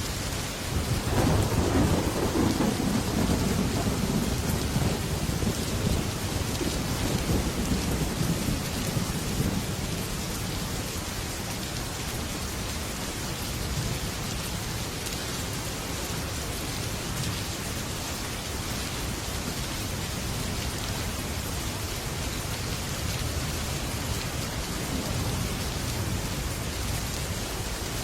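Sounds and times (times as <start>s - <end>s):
heavy rain on a metal roof: 0.0s - 28.0s
thunder rumbling: 0.7s - 10.8s.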